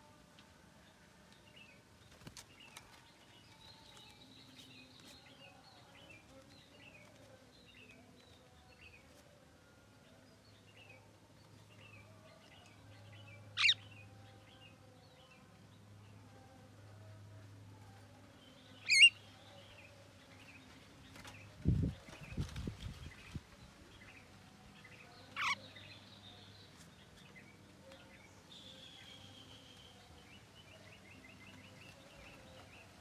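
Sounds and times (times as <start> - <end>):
bird chirping: 9.6 - 16.5, 18.4 - 33.0.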